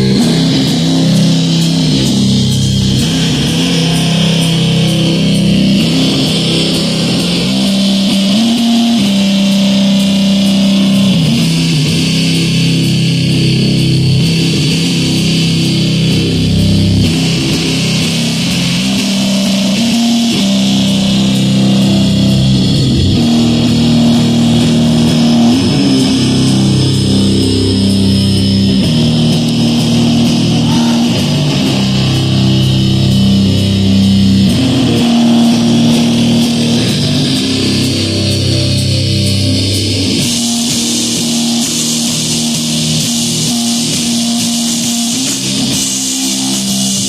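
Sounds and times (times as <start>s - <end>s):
heavy rock band playing live: 0.0s - 47.0s.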